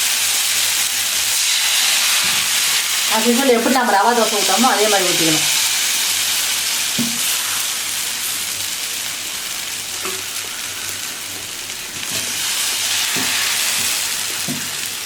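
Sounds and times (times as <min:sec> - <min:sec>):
batter sizzling on griddle: 0:00.0 - 0:15.0.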